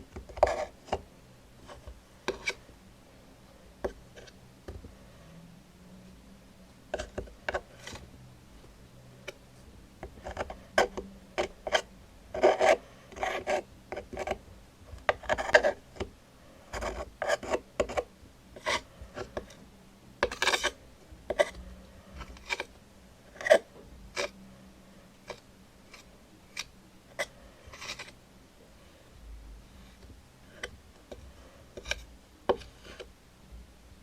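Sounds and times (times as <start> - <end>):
scratching and rubbing strokes: 6.9 - 8.2, 25.3 - 28.2.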